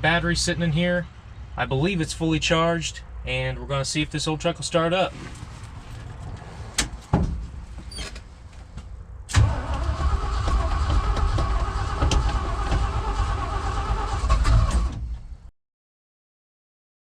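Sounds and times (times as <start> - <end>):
truck engine cranking: 9.3 - 15.2.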